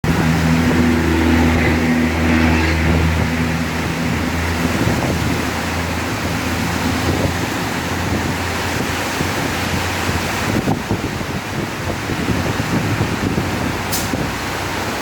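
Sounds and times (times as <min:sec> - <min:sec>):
low hum: 0:00.0 - 0:10.0
heavy rain falling: 0:00.0 - 0:15.0.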